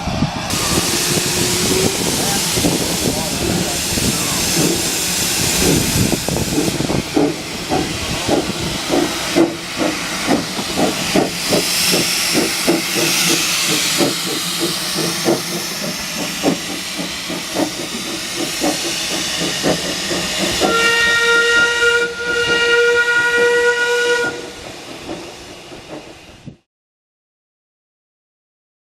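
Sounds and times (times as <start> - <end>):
steam locomotive exhaust beats: 0.0 - 26.6
steam hissing: 0.2 - 26.5
steam whistle: 0.5 - 2.5, 20.5 - 24.6.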